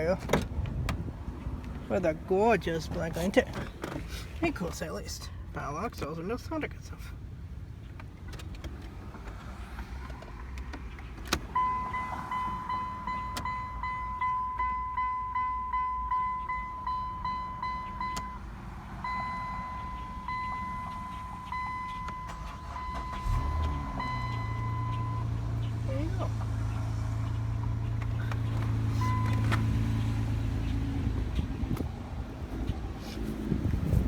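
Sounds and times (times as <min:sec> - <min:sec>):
dashboard warning chime beeps: 0:11.5 - 0:25.8, 0:29.0 - 0:30.0.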